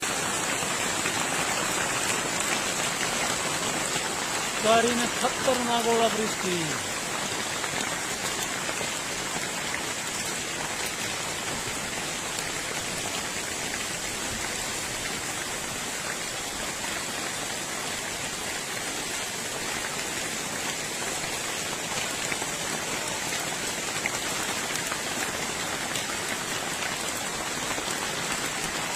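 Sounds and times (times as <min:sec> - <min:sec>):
hailstones pelting down: 0:00.1 - 0:08.1.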